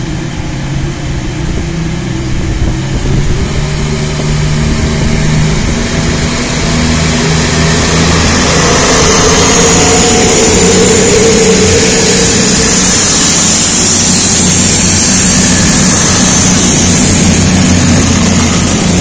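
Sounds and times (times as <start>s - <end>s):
high whine: 0.0s - 19.0s
train engine running: 0.0s - 19.0s.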